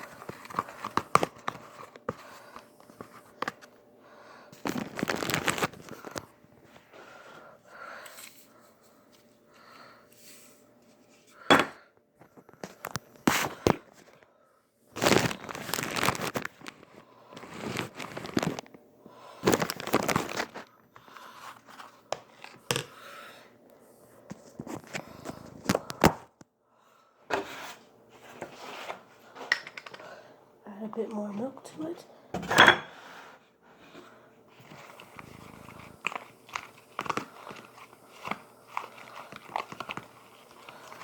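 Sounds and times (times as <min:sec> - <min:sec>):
packaging rustling and crinkling: 0:00.0 - 0:03.7, 0:04.6 - 0:06.8, 0:15.0 - 0:18.8, 0:19.4 - 0:20.7, 0:34.0 - 0:41.0.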